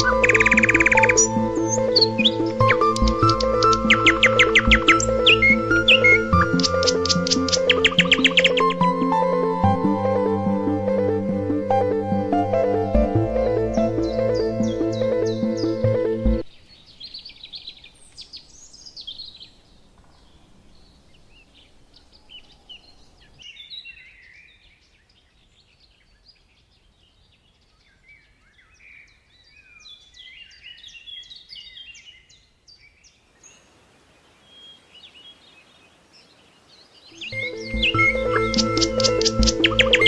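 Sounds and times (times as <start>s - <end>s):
birds chirping: 0.0s - 40.0s
faint steady hiss: 33.1s - 37.4s.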